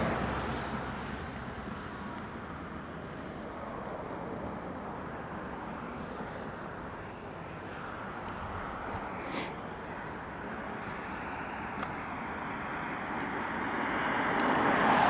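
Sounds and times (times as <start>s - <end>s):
tyres on wet road: 0.0s - 15.0s.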